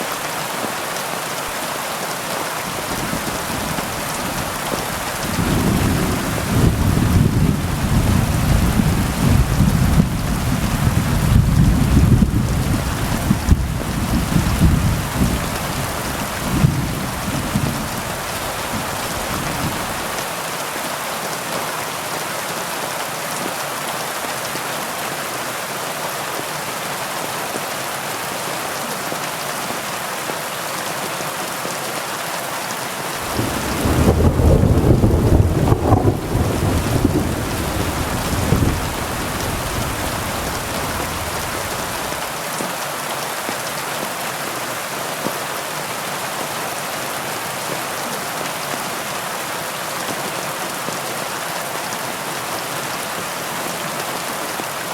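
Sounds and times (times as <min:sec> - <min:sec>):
heavy rain: 0:00.0 - 0:54.9
thunder rumbling: 0:02.9 - 0:20.1, 0:33.2 - 0:42.3.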